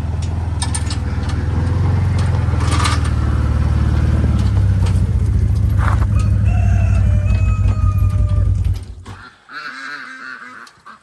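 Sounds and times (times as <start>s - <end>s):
utility vehicle engine running: 0.0s - 9.1s
brief rattle: 0.2s - 6.4s
ducks quacking: 9.0s - 11.0s.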